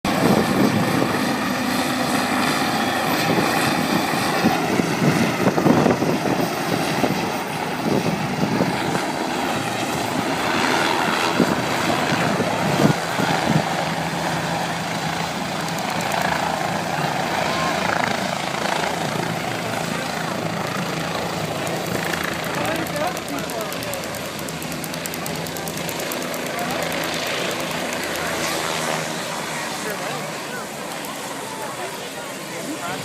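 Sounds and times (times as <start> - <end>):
helicopter rotor and engine: 0.0 - 33.0.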